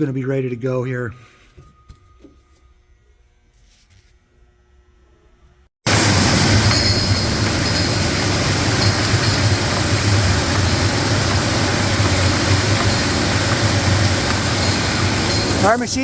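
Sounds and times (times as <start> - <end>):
bottle-capping machine running: 5.9 - 16.0.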